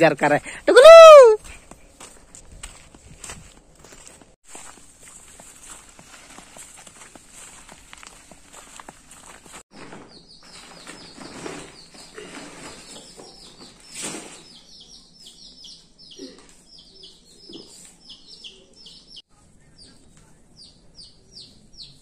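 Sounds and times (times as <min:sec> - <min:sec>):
small birds chirping: 0:08.7 - 0:22.0.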